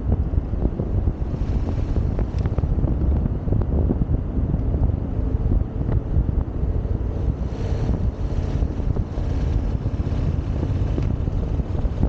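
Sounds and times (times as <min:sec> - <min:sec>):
wind buffeting microphone: 0:00.0 - 0:12.0
motorcycle engine running: 0:05.2 - 0:12.0.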